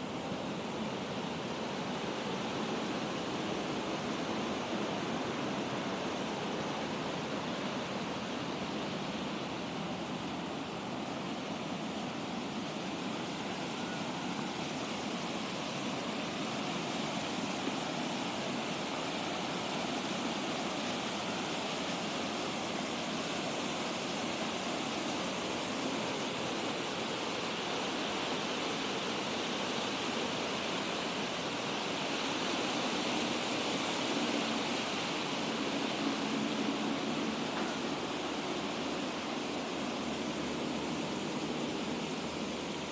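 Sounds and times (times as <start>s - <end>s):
water pouring down waterfall: 0.0s - 42.9s.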